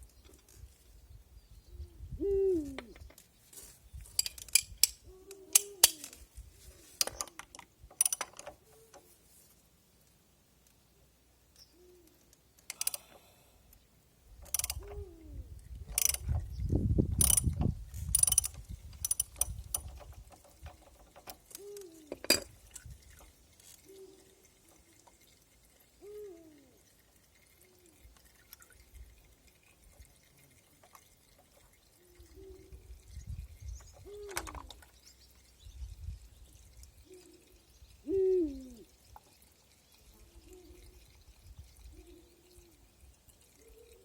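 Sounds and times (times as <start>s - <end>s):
metallic clanks of tools: 4.1s - 6.2s, 22.1s - 22.5s
ratchet wrench clicking: 8.0s - 8.4s, 12.7s - 13.1s, 14.5s - 14.8s, 15.9s - 16.2s, 17.2s - 17.5s, 18.1s - 19.9s.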